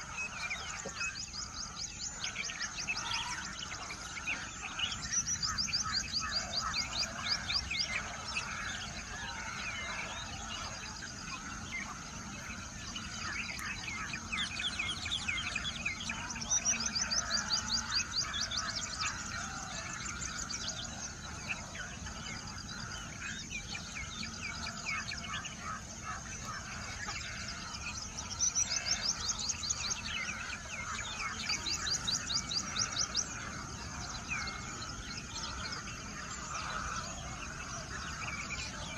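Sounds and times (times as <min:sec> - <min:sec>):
small songbirds chirping: 0:00.0 - 0:38.9.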